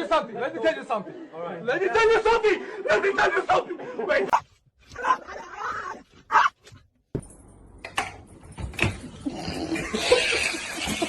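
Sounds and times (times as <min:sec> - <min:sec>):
dog barking: 0:05.0 - 0:06.6.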